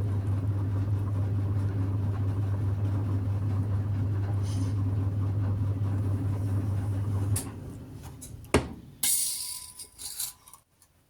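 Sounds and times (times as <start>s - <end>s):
potter's wheel motor humming: 0.0s - 8.6s
scraping: 9.0s - 10.6s.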